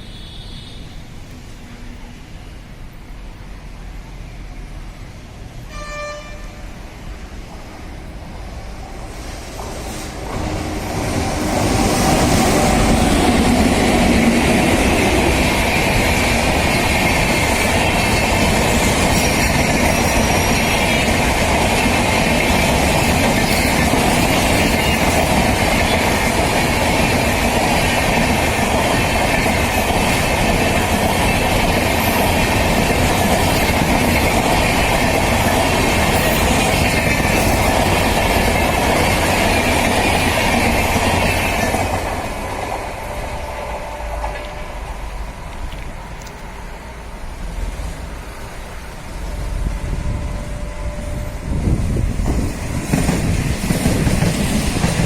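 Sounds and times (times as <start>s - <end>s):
train wheels rushing on rail: 0.0s - 55.0s
wheel clickety-clack: 11.1s - 42.1s, 52.2s - 55.0s
high ringing: 49.1s - 52.2s.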